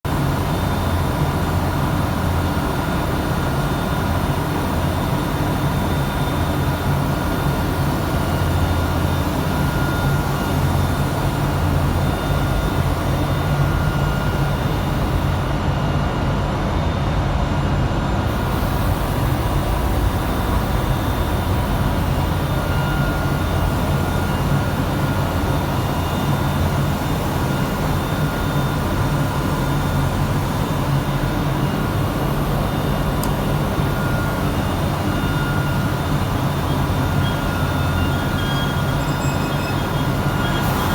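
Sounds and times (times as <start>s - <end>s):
faint high whines: 18.2s - 40.9s
motor hum: 32.3s - 40.9s
grinding hiss: 36.7s - 40.9s.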